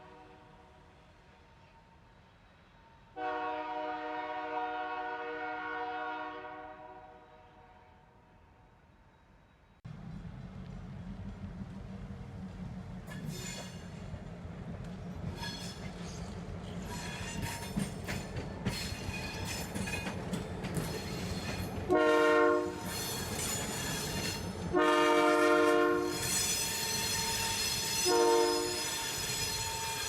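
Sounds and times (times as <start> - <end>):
locomotive horn blasts: 3.2 - 7.9, 21.9 - 22.8, 24.7 - 26.2, 28.0 - 28.9
freight train rumbling: 9.8 - 30.0.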